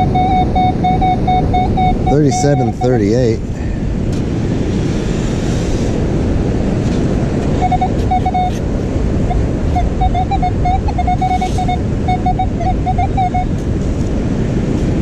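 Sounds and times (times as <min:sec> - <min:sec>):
metal detector beeps: 0:00.0 - 0:03.3, 0:07.6 - 0:08.6, 0:09.3 - 0:13.6
surf washing: 0:00.0 - 0:15.0
wind buffeting microphone: 0:00.0 - 0:15.0.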